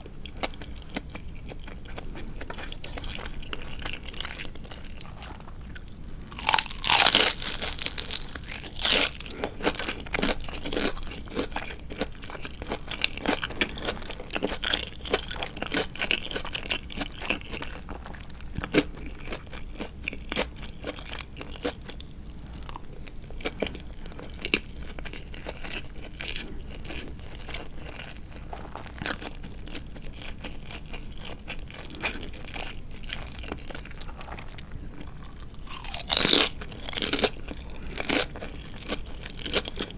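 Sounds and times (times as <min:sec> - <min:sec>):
chewing with small crunches: 0:00.0 - 0:39.9
loud crunches of fried chicken: 0:05.7 - 0:11.7, 0:35.0 - 0:39.9.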